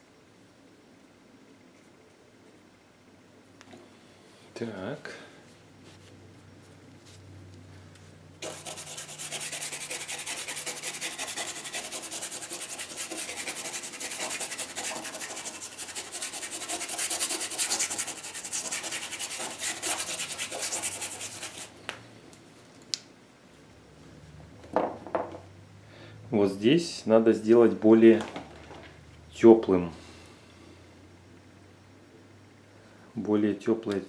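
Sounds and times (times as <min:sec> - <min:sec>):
brush scrubbing on canvas: 0:08.4 - 0:21.7.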